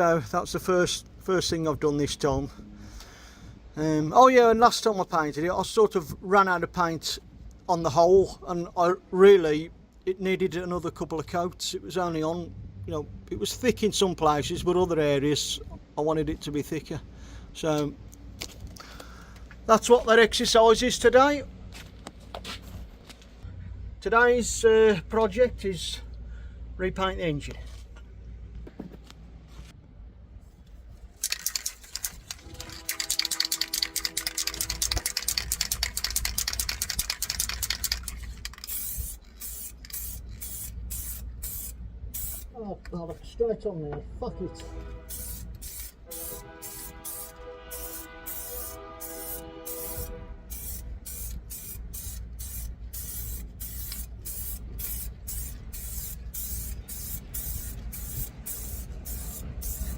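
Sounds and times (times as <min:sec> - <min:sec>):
spray can mixing ball rattling: 0:31.2 - 0:42.5, 0:45.1 - 0:59.9
spray paint hissing: 0:31.2 - 0:42.6, 0:45.0 - 0:59.9
steady low rumble: 0:49.6 - 0:59.9.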